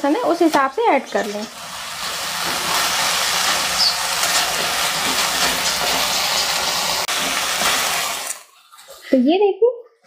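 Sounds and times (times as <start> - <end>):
food sizzling in a wok: 0.0 - 8.6
spatula scraping a pan: 2.0 - 9.1.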